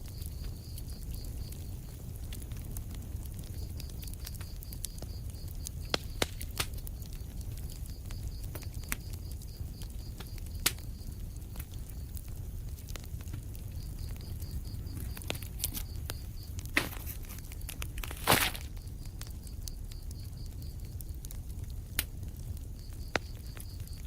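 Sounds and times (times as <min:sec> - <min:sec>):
fireplace fire crackling: 0:00.0 - 0:24.0.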